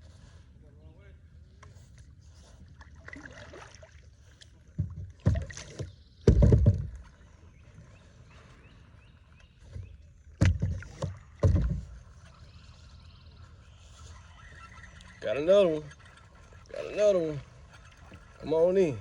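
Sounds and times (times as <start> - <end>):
water splashes: 2.6 - 6.0
hollow knocks on a kayak: 4.7 - 7.2, 9.6 - 12.1.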